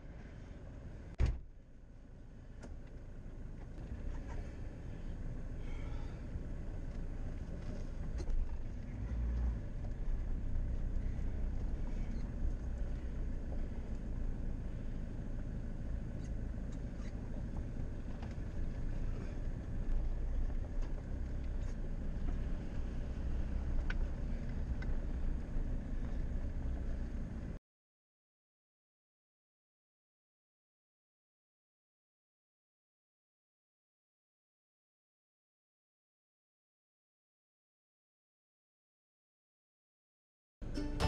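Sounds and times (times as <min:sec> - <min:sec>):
engine running at low speed: 0:00.0 - 0:27.6
faint engine ticks: 0:02.4 - 0:27.6.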